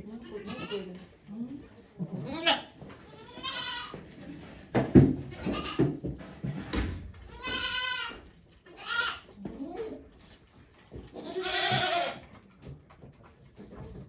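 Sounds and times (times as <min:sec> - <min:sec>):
goat bleating: 0:00.2 - 0:00.9, 0:02.1 - 0:04.0, 0:05.3 - 0:05.9, 0:07.3 - 0:10.0, 0:11.1 - 0:12.3.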